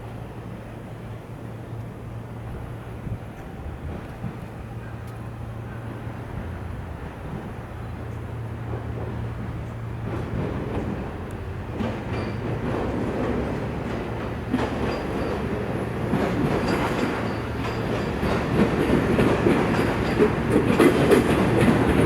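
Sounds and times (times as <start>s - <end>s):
train wheels rumbling: 0.1s - 22.0s
wheels clicking over rail joints: 8.1s - 22.0s.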